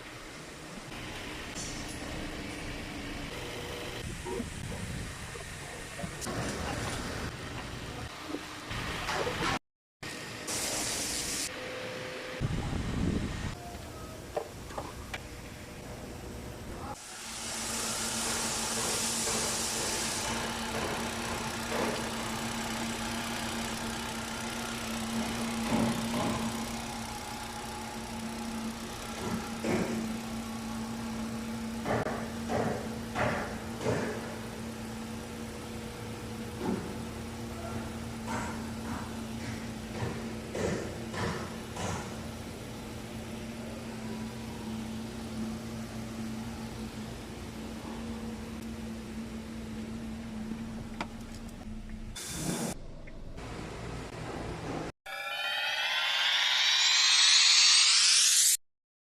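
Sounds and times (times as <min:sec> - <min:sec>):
hiss: 0:10.5 - 0:11.5, 0:17.0 - 0:21.0.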